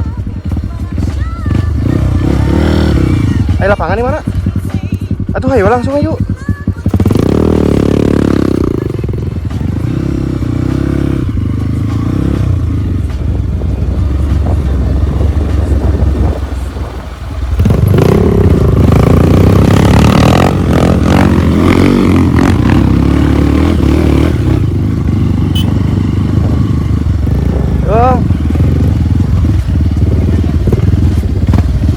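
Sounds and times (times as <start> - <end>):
motorcycle engine revving: 0.0 - 31.9.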